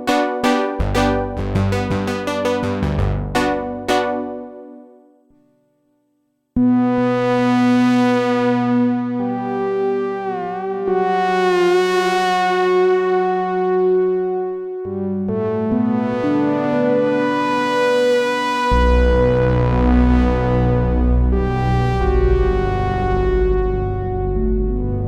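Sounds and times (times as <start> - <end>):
synthesizer playing sustained chords: 0.0 - 5.0.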